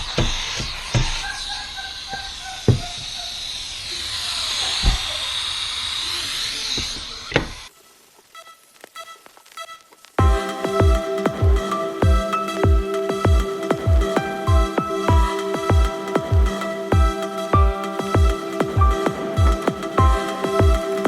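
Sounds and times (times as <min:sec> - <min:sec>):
hissing spray: 0:00.0 - 0:11.8.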